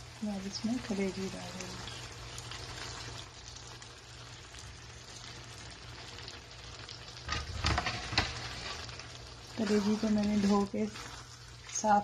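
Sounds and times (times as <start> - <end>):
food sizzling in hot oil: 0.0 - 12.0
spatula scraping a pan: 7.3 - 12.0.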